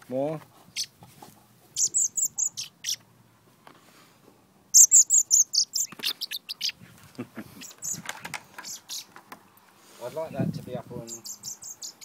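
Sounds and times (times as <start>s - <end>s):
fledgling cheeping: 1.8s - 3.0s, 4.8s - 6.8s.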